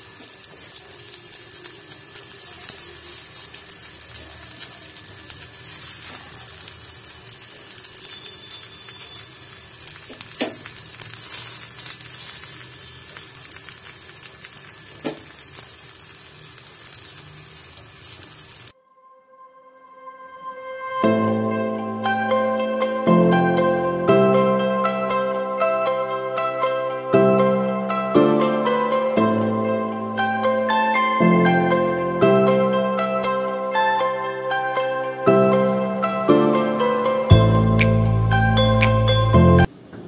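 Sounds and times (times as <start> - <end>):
food sizzling in frying pan: 0.0 - 18.7.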